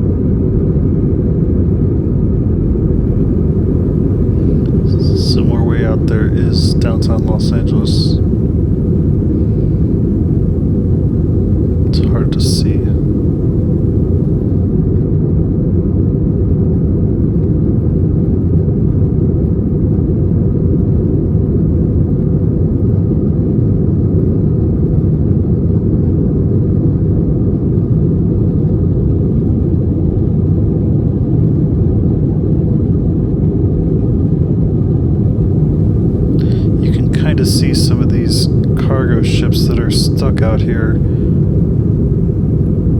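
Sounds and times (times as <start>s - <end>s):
airplane cabin engine rumble: 2.3s - 14.8s, 35.2s - 42.9s.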